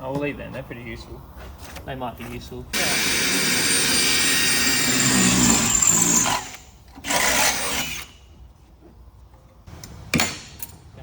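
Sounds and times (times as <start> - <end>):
power tool whining: 2.8 - 8.1.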